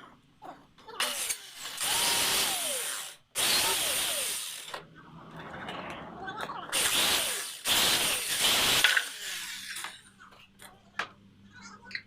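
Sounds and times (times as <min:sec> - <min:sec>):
power drill running: 0:01.0 - 0:04.8, 0:06.7 - 0:09.9.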